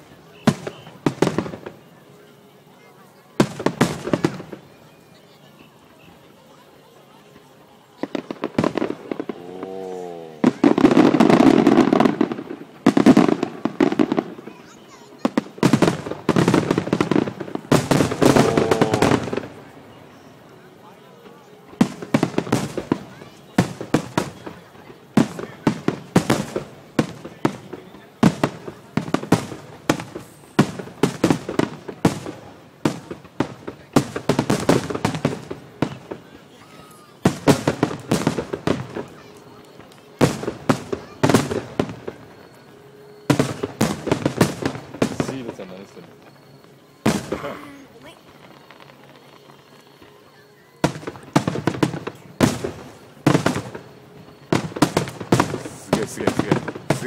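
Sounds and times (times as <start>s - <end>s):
fireworks bangs: 0.0s - 57.0s
fireworks crackling: 0.0s - 57.0s
firework shells bursting: 8.0s - 14.6s, 15.2s - 19.8s, 50.8s - 57.0s.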